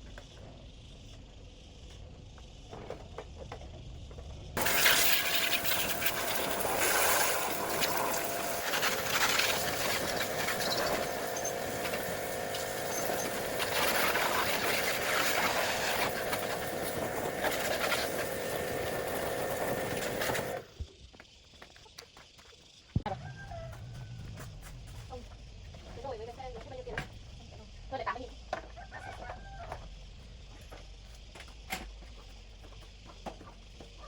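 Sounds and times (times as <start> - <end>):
machine hissing and humming: 4.4 - 20.9.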